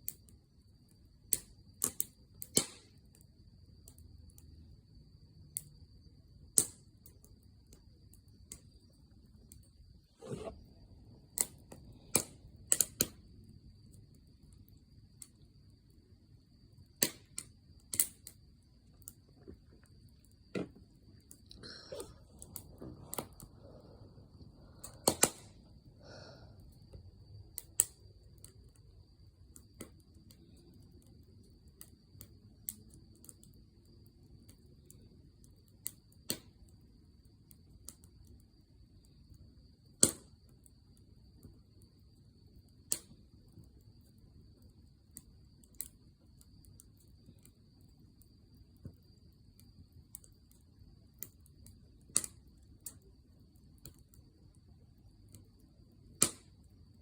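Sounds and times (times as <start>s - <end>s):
firewood crackling and popping: 1.2s - 4.5s, 5.5s - 41.9s, 42.5s - 57.0s
soft rush of flames: 8.1s - 31.4s.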